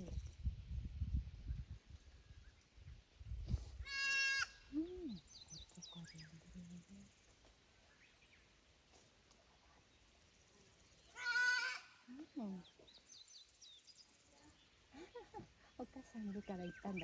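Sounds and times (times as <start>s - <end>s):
goat bleating: 3.9s - 4.5s, 11.2s - 12.0s.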